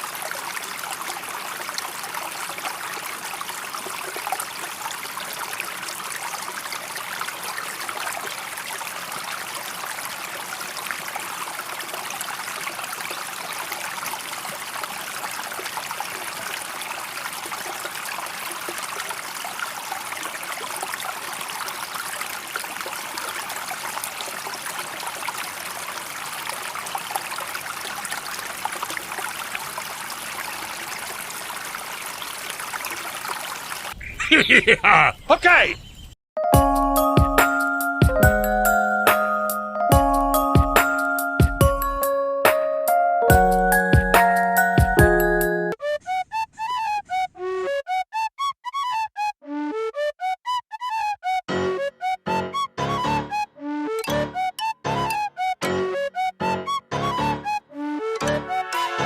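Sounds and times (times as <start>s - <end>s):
water flowing and splashing: 0.0s - 35.0s.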